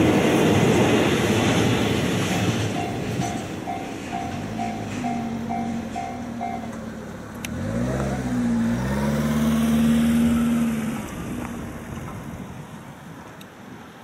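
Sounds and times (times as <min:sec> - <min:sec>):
level-crossing warning bell: 0:02.1 - 0:06.9
vehicle engine pulling away: 0:04.4 - 0:12.5.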